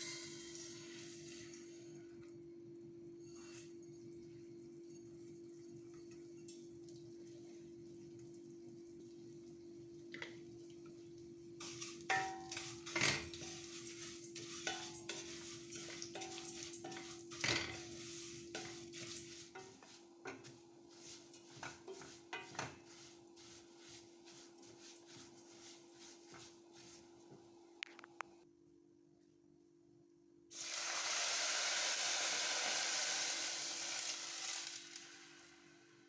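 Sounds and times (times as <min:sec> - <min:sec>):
metal utensils clinking on dishes: 0:11.6 - 0:13.6, 0:14.6 - 0:17.9.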